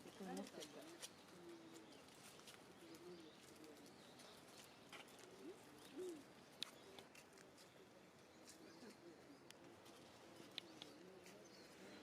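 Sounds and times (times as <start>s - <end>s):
faint low bird calls: 0.0s - 12.0s
faint clicks: 10.4s - 11.0s.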